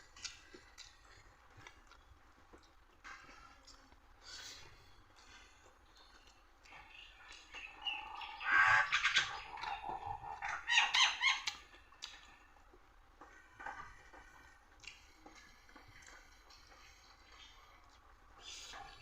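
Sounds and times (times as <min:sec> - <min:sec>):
chicken calling: 0:07.4 - 0:12.3.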